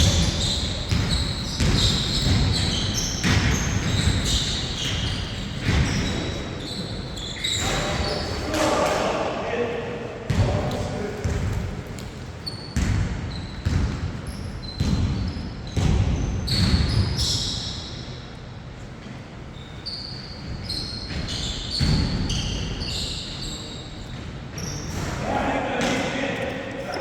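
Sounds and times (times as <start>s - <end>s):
basketball bouncing on court: 0.0s - 6.7s, 10.3s - 17.4s, 20.4s - 22.9s
sneaker squeaks: 0.0s - 9.3s, 10.3s - 18.4s, 19.0s - 27.0s.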